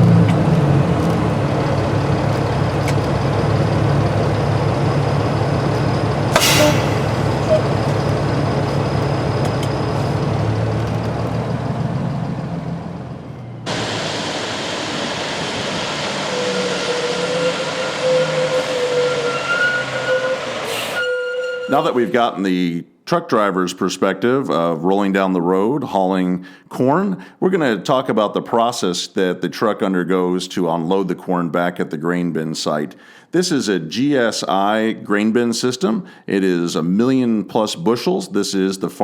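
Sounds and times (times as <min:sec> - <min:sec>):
truck diesel engine running: 0:00.0 - 0:21.0
machinery noise with thin whine: 0:01.6 - 0:10.2, 0:13.7 - 0:21.0
sharp click: 0:06.4 - 0:07.6.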